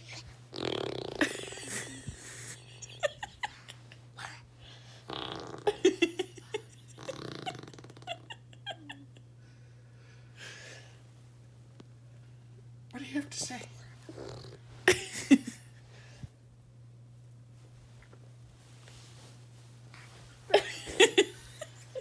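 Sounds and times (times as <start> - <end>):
baby blowing raspberries: 0.1 - 1.2, 5.1 - 5.8.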